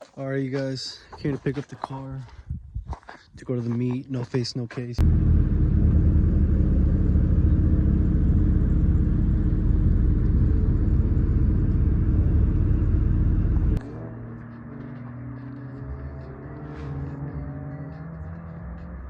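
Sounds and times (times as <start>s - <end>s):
car engine running steadily: 5.0s - 18.8s.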